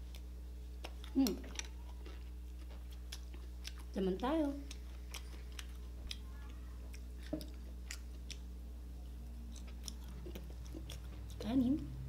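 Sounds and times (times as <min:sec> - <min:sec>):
chewing with wet mouth clicks: 0:00.0 - 0:04.0, 0:04.6 - 0:11.5
steady low hum: 0:00.0 - 0:12.0.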